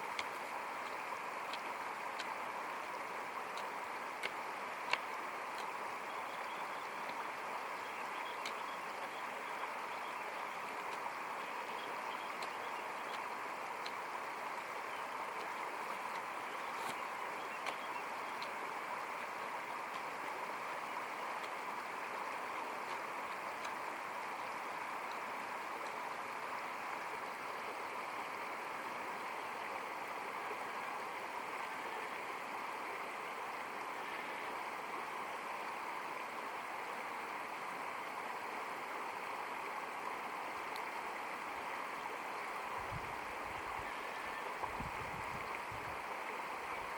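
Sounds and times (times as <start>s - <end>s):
faint ticks: 0.0s - 2.4s, 3.5s - 7.3s, 7.9s - 9.2s, 10.8s - 11.1s, 15.4s - 18.6s, 22.5s - 26.0s, 40.0s - 41.0s.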